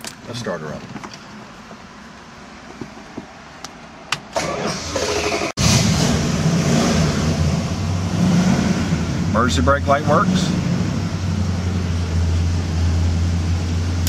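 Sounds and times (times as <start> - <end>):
car engine running loud: 5.6 - 14.0.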